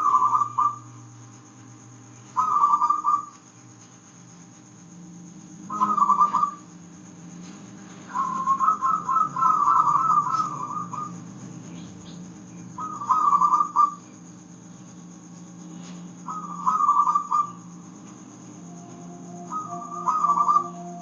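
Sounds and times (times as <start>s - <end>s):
dove cooing: 0.0s - 0.9s, 2.4s - 3.3s, 5.6s - 6.7s, 8.1s - 14.1s, 16.2s - 17.8s, 18.6s - 21.0s
faint low hum: 0.0s - 21.0s.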